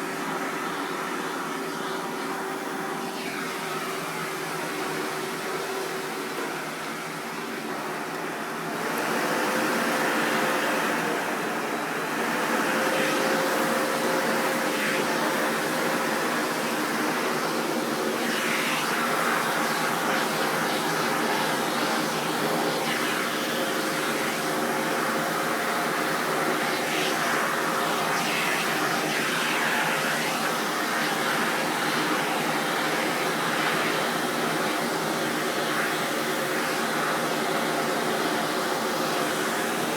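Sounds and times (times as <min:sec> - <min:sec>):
vacuum cleaner whining: 0:00.0 - 0:39.9.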